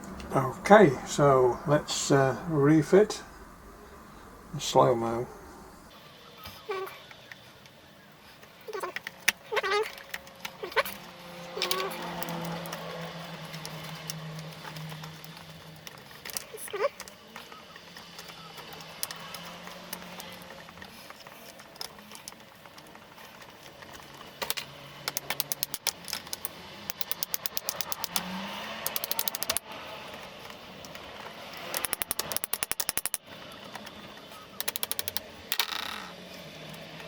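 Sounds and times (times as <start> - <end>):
ratchet screwdriver clicking: 25.1 - 29.6, 31.6 - 33.2, 34.6 - 35.7.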